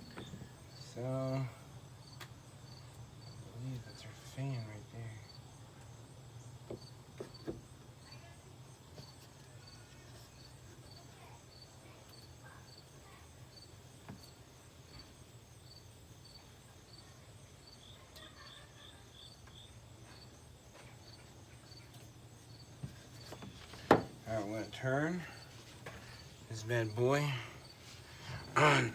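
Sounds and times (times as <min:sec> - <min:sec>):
insect chirping: 0:00.0 - 0:28.9
light knocks: 0:22.8 - 0:24.2.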